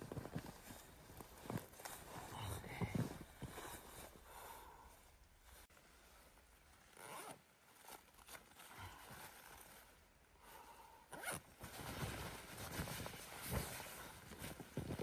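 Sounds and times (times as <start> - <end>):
zipper being pulled: 6.8 - 9.9, 11.1 - 14.0.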